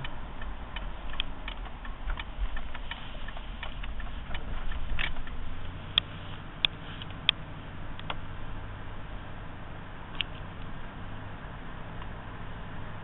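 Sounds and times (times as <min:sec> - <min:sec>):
clicking and rattling: 0:00.0 - 0:08.3
car engine and road rumble: 0:00.0 - 0:13.0.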